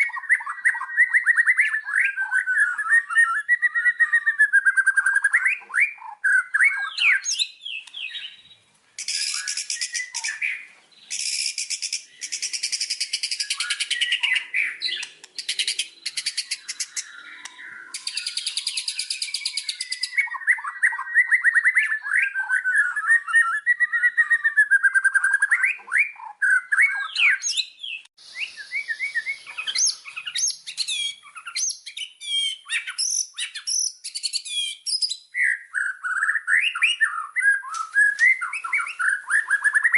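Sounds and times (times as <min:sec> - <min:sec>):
bird singing whistled phrases: 0:00.0 - 0:39.9
bird harsh rattling trills: 0:09.0 - 0:20.2.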